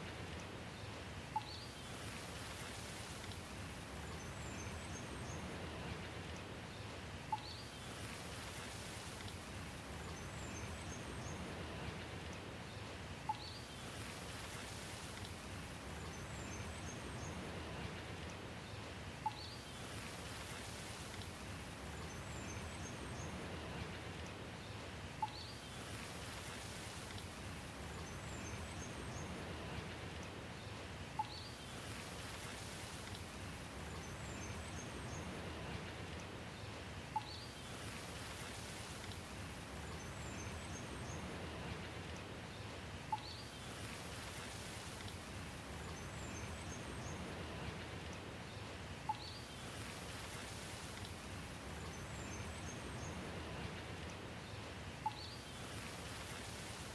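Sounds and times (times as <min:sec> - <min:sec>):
steady rain hiss: 0:00.0 - 0:56.9
faint bird chirps: 0:01.3 - 0:02.8, 0:07.3 - 0:08.0, 0:13.3 - 0:14.7, 0:19.2 - 0:20.8, 0:25.2 - 0:26.1, 0:31.2 - 0:32.8, 0:37.1 - 0:38.9, 0:43.1 - 0:44.8, 0:48.6 - 0:50.6, 0:55.0 - 0:56.5
sharp drip tick: 0:07.3 - 0:08.2, 0:33.0 - 0:33.3, 0:37.1 - 0:39.3, 0:43.1 - 0:45.2.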